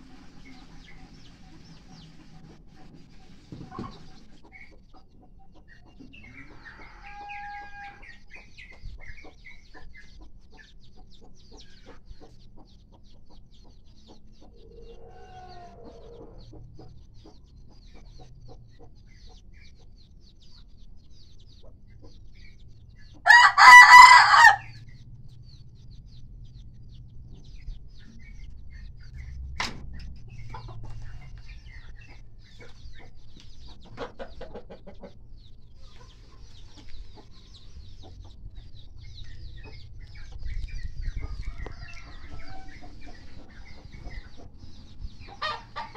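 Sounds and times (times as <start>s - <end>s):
faint chicken clucks: 0.0s - 45.9s
rooster crowing: 6.6s - 8.0s, 23.2s - 24.8s, 41.4s - 42.9s.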